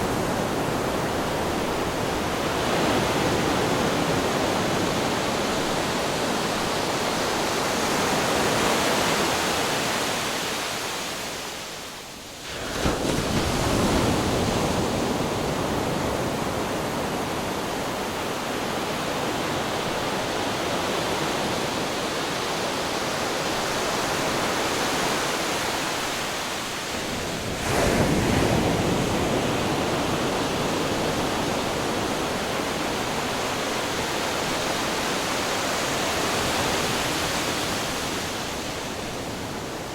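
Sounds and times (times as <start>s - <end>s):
ocean waves crashing on rocks: 19.4s - 39.6s.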